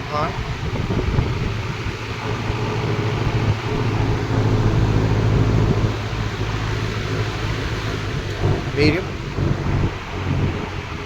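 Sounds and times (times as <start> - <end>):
fan air rushing: 0.0 - 11.0
low motor hum: 0.0 - 11.0.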